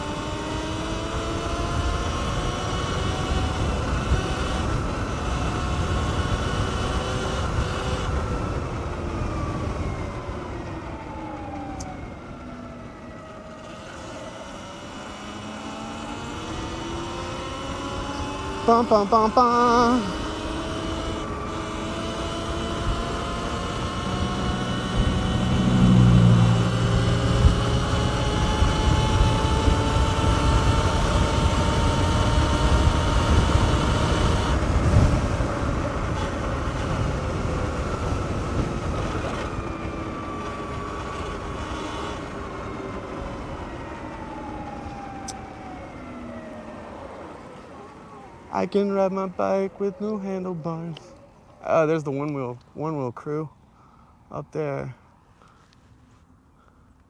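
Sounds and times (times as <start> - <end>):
road rumble: 0.0 - 57.0
wind: 0.0 - 57.0
electric motor whine: 13.1 - 35.4.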